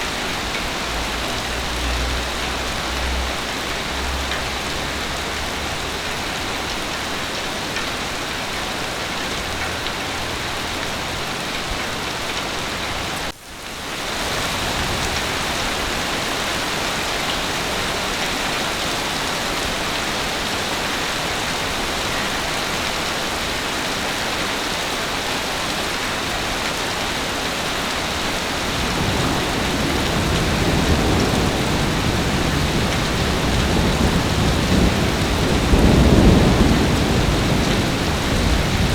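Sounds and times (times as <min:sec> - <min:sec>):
heavy rain falling: 0:00.0 - 0:38.9
low thunder rumble: 0:28.1 - 0:38.9.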